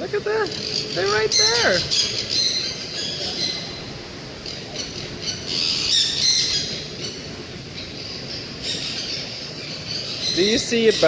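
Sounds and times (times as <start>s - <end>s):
parrot squawking: 0.3s - 3.8s.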